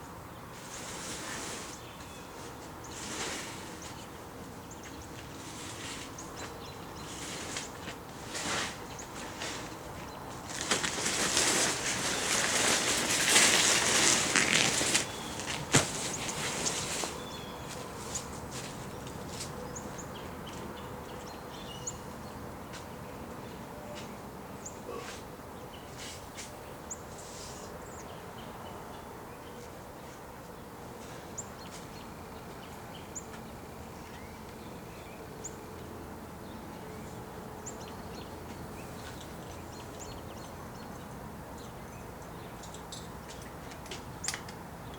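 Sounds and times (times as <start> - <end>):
car cover rustling and dragging: 7.0 - 18.8.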